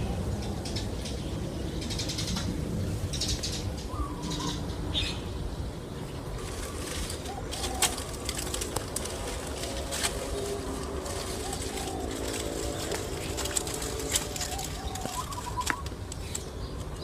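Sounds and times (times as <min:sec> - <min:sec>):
bird warning calls: 0:00.0 - 0:17.0
birds flapping and rustling: 0:06.2 - 0:17.0.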